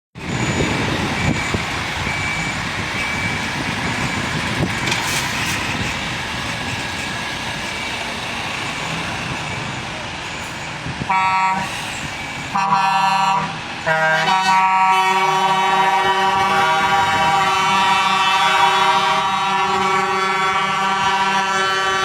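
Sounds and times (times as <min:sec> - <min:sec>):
reversing beeper: 0:00.2 - 0:05.9, 0:07.6 - 0:13.5
diesel truck engines running: 0:00.2 - 0:22.0.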